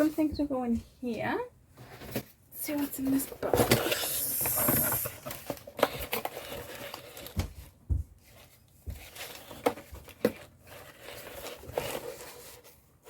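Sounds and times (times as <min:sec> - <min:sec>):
paper rustling and crinkling: 0:02.9 - 0:13.0.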